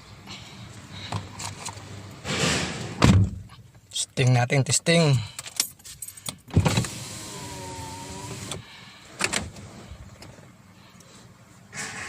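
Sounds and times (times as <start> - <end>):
electric fuel pump whining: 6.7 - 8.6.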